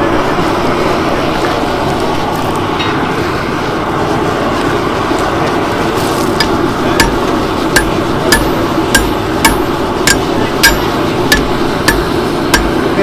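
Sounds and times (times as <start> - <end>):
steady background noise: 0.0 - 13.0
hammer striking steel on anvil: 6.4 - 13.0.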